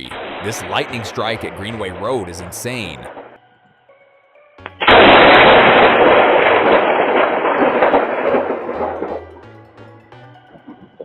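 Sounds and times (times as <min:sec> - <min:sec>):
thunder crack rumbling: 0:00.0 - 0:03.2, 0:04.8 - 0:09.7.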